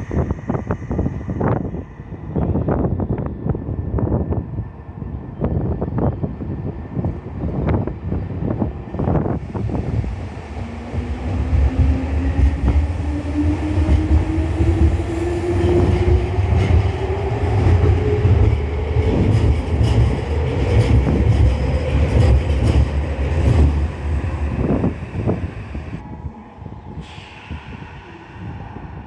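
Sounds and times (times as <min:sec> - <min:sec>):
low rumble: 0:09.1 - 0:29.0.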